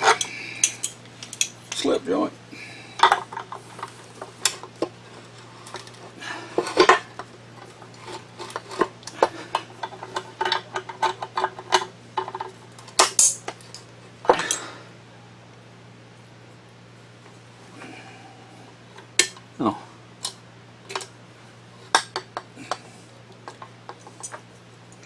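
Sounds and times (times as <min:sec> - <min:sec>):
metal tools and parts clinking: 0:00.0 - 0:02.0, 0:08.0 - 0:14.8, 0:23.5 - 0:25.0.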